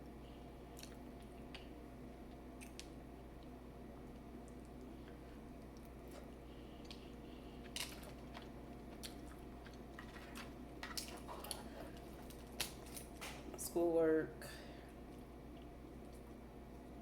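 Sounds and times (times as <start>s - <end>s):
quiet chewing: 0.6s - 13.2s, 14.9s - 17.0s
shells clicking and cracking: 2.6s - 3.0s, 9.1s - 13.4s.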